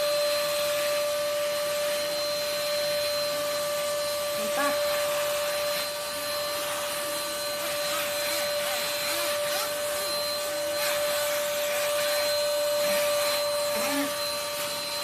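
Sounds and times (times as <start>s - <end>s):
vacuum cleaner motor whine: 0.0s - 15.0s.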